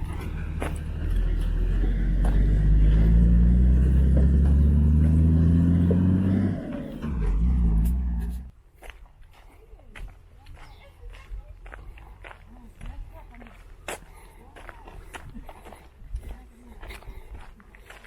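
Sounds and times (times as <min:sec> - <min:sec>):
vehicle engine accelerating: 0:00.0 - 0:08.5.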